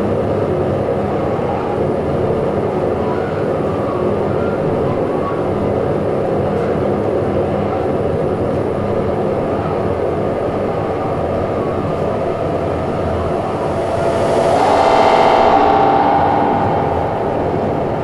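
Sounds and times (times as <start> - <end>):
rumbling drone: 11.5 - 18.0.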